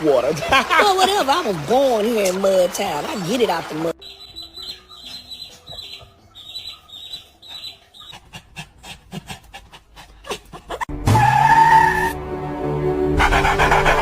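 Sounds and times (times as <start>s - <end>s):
dog panting: 6.7s - 10.8s.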